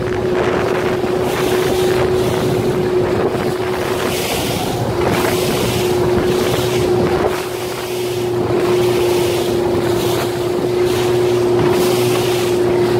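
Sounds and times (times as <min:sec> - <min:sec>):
water rushing past boat: 0:00.0 - 0:12.9
wind buffeting microphone: 0:00.0 - 0:12.9.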